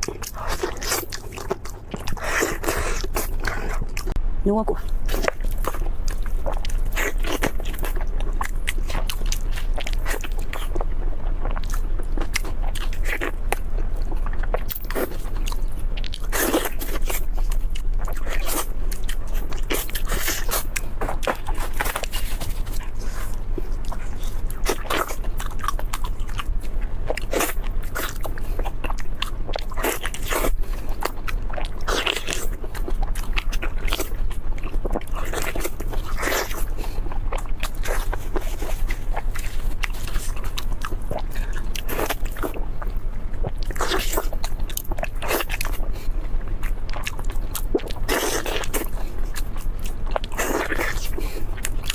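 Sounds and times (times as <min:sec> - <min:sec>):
crunchy chewing: 0:00.0 - 0:04.2, 0:04.8 - 0:51.9
low hum: 0:00.0 - 0:51.9.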